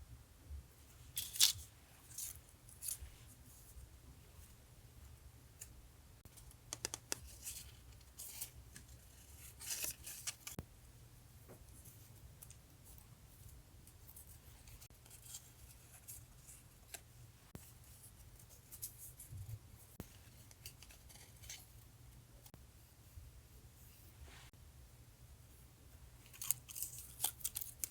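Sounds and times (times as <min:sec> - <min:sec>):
low steady hum: 0:00.0 - 0:27.9
scissors snipping paper: 0:26.3 - 0:27.9.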